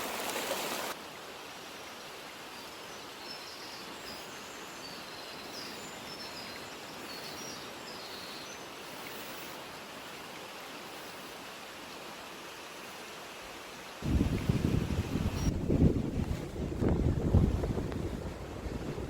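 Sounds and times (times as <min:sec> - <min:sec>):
mountain stream rushing: 0:00.0 - 0:19.0
wind gust buffeting microphone: 0:14.0 - 0:19.0.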